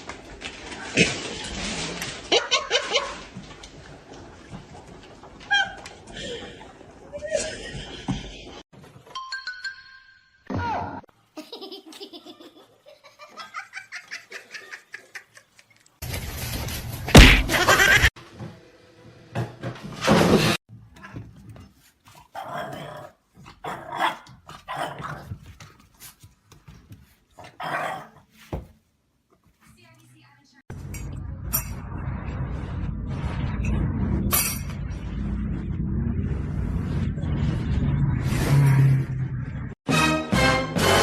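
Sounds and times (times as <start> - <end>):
people laughing: 11.4 - 15.9.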